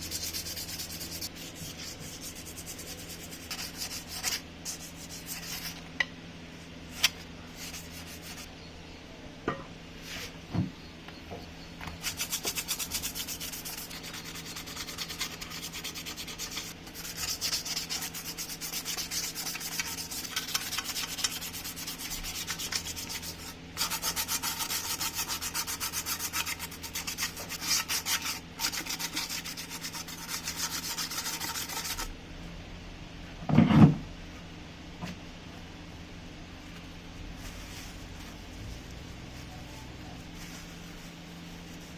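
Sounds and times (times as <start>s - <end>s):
sanding rasp: 0.0s - 5.8s, 7.6s - 8.5s, 12.0s - 32.1s.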